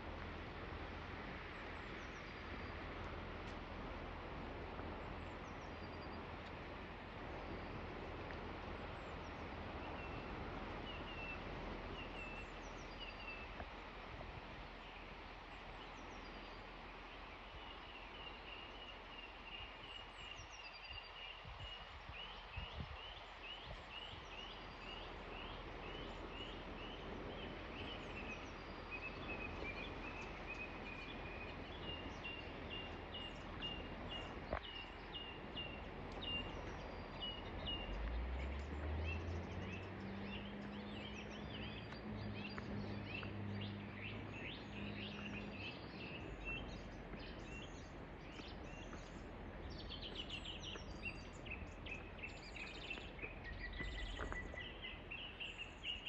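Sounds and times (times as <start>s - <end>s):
river flowing: 0.0s - 56.0s
birds singing: 14.8s - 56.0s
low droning hum: 24.8s - 56.0s.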